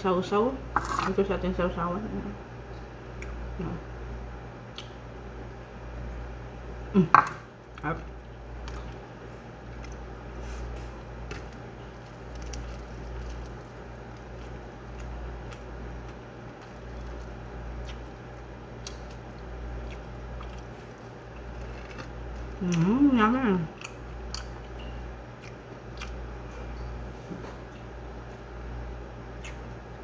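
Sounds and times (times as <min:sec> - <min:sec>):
person chewing: 0:07.7 - 0:22.9, 0:23.7 - 0:26.5, 0:29.4 - 0:29.7.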